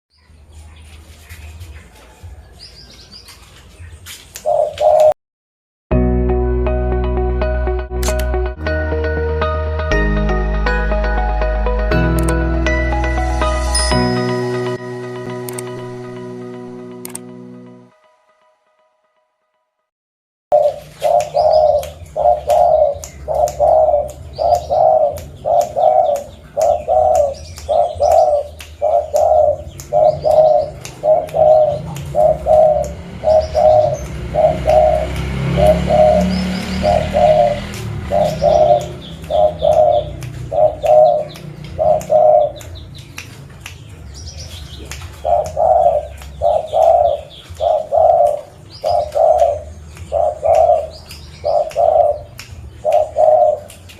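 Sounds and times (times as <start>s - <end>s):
dove cooing: 4.4s - 5.1s, 20.5s - 42.6s, 45.2s - 53.7s.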